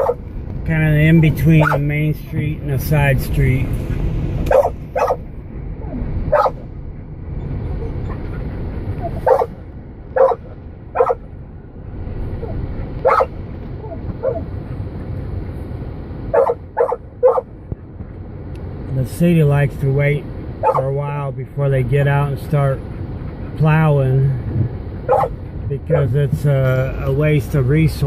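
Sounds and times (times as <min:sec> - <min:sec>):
dog barking: 0:00.0 - 0:00.2, 0:01.6 - 0:01.8, 0:04.5 - 0:05.2, 0:06.3 - 0:06.6, 0:09.0 - 0:09.5, 0:10.2 - 0:11.2, 0:12.4 - 0:13.3, 0:16.3 - 0:17.5, 0:20.6 - 0:20.9, 0:25.1 - 0:26.1
low rumble of car driving: 0:00.0 - 0:28.0.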